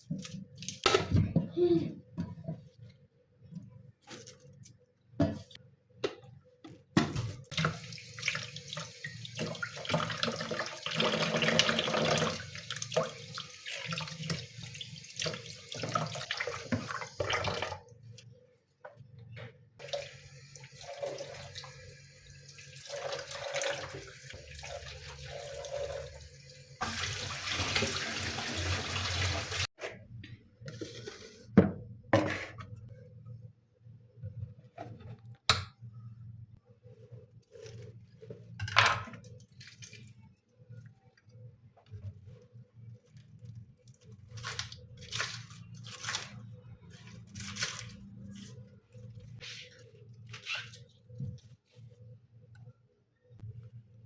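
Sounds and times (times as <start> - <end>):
tap water splashing into sink: 7.0 - 17.8.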